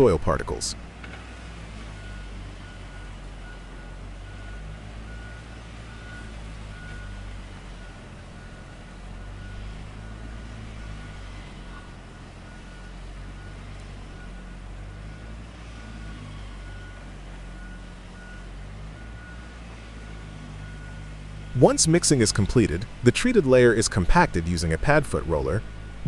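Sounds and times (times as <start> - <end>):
diesel engine running: 0.0 - 26.0
reversing alarm beeping: 2.0 - 11.6, 12.4 - 21.8.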